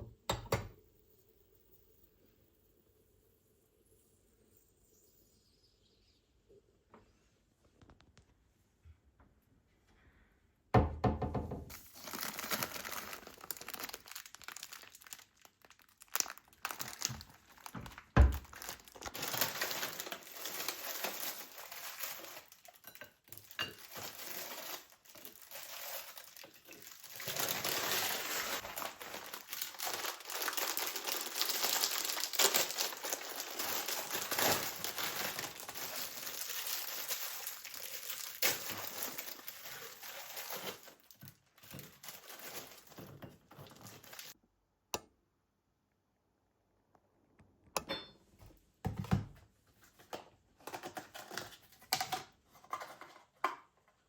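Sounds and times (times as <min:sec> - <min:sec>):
packaging crinkling: 0:11.7 - 0:44.4.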